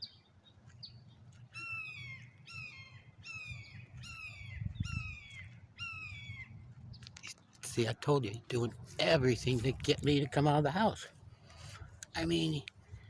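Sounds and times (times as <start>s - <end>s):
hawk shrill calls: 1.5s - 6.5s.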